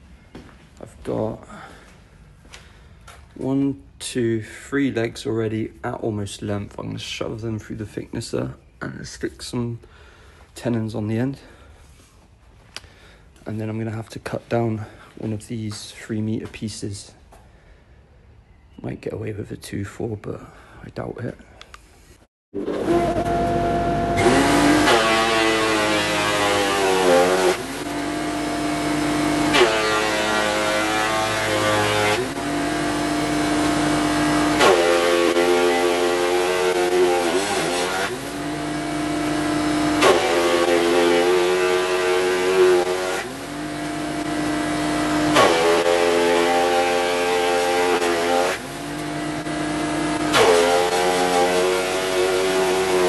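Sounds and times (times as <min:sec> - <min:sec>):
woodworking machine motor whine: 0:22.6 - 0:53.0.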